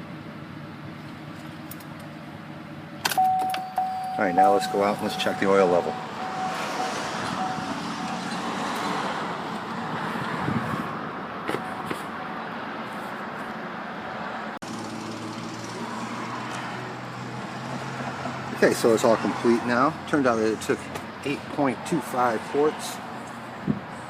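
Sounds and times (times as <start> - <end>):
truck engine idling: 0.0 - 12.5.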